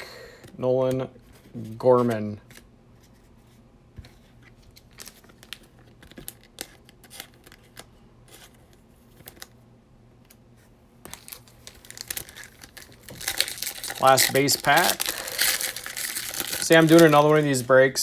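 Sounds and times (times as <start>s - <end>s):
cards shuffled by hand: 11.0s - 17.7s.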